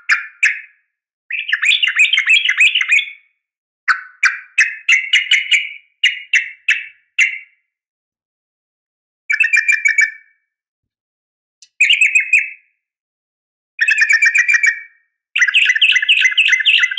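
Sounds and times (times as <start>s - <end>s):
bulbul calling: 1.3s - 3.2s, 3.9s - 7.4s, 15.4s - 16.9s.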